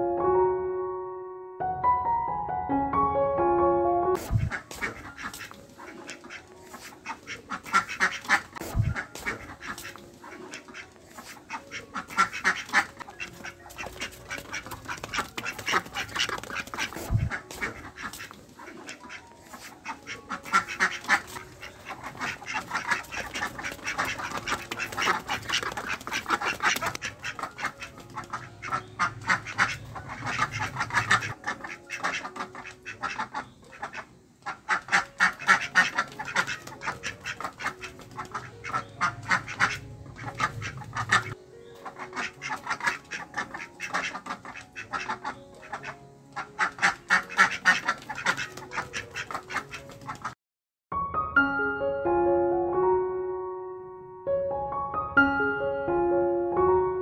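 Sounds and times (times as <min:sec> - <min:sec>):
ducks quacking: 0:04.2 - 0:50.4.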